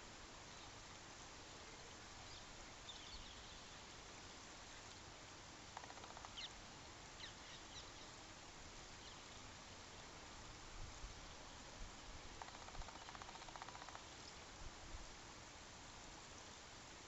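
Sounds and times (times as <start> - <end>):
steady hiss: 0.0 - 17.0
faint bird chirps: 1.7 - 5.1, 5.7 - 8.3, 8.9 - 10.1, 12.4 - 14.5
rapid rattling bird call: 5.7 - 6.6, 12.3 - 14.3.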